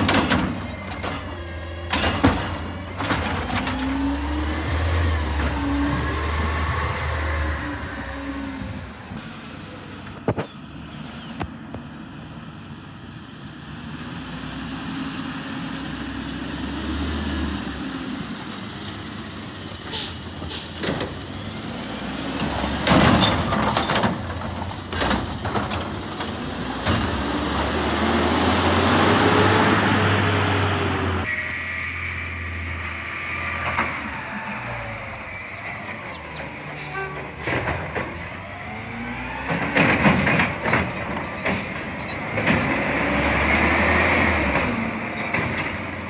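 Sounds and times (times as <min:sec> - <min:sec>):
cart and lid banging: 0:00.0 - 0:04.1
garbage truck engine revving: 0:00.0 - 0:09.9, 0:14.2 - 0:46.0.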